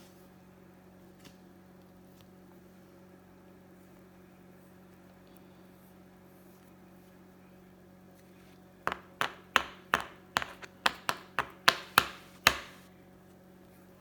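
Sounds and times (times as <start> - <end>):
low room hum: 0.0 - 14.0
sharp taps on hard surface: 8.9 - 12.8.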